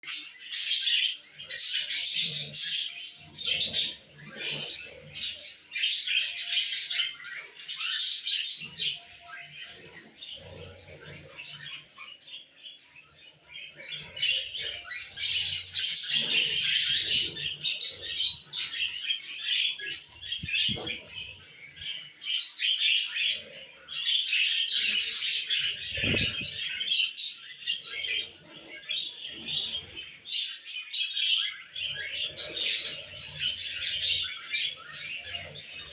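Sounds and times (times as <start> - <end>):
budgerigar warbling chatter: 13.8 - 30.0.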